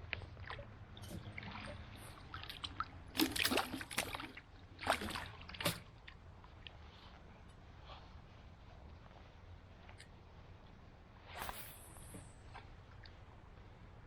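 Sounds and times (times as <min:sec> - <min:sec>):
low steady background noise: 0:00.0 - 0:14.0
river water splashing: 0:01.3 - 0:05.9.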